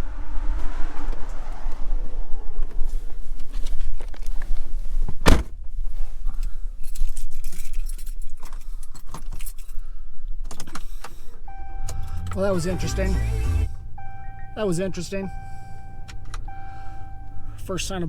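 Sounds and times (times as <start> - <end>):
road and engine rumble: 10.5 - 18.0.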